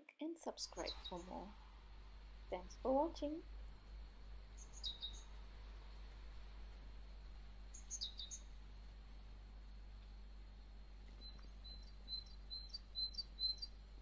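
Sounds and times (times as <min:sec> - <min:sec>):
low steady rumble: 0:00.2 - 0:14.0
small bird chirping: 0:00.6 - 0:01.5, 0:04.5 - 0:06.0, 0:07.6 - 0:08.6, 0:11.0 - 0:14.0.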